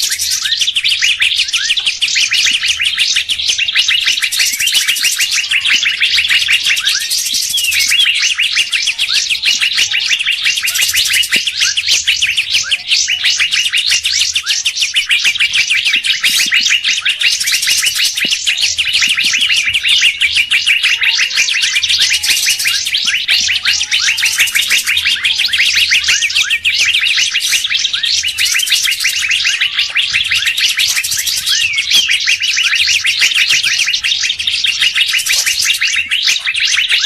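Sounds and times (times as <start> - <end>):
songbirds chirping and chattering: 0.0 - 37.0.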